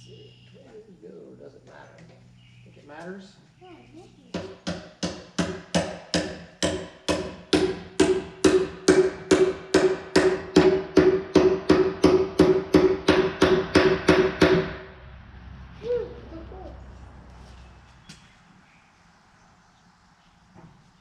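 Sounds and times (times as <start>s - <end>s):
hammer striking metal: 4.4s - 14.8s.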